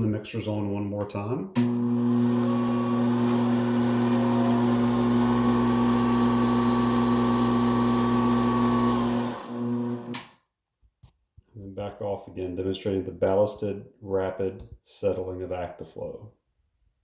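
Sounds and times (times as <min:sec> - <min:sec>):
electric stirrer motor humming: 0:01.6 - 0:10.2.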